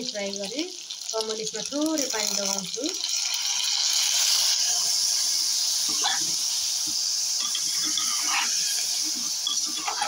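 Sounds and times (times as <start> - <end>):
meat sizzling in hot oil: 0.0 - 10.0
spatula scraping: 5.9 - 6.4, 7.4 - 10.0.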